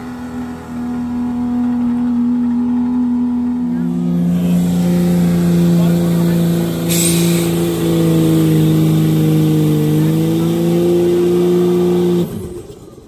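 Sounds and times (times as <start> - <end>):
truck engine at high revs: 0.0 - 13.0
short hiss: 6.9 - 7.5.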